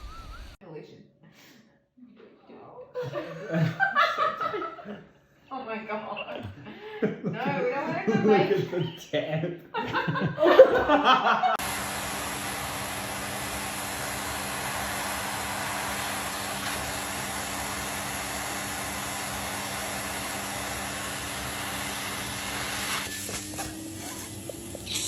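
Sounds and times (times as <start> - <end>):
water running from a tap: 13.0 - 25.0.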